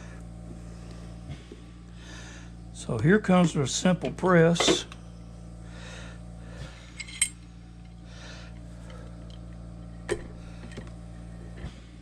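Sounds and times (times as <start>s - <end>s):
low hum: 0.0s - 12.0s
metal parts clinking and tapping: 7.0s - 7.4s.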